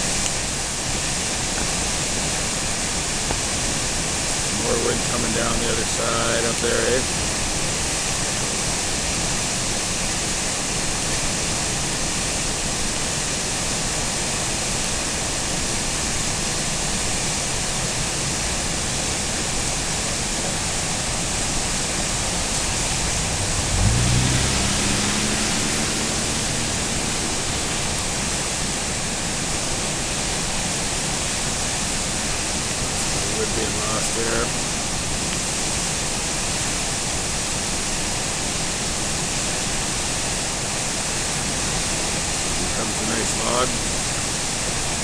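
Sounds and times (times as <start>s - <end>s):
river rushing over falls: 0.0s - 45.0s
low hum rising in pitch: 22.0s - 29.1s.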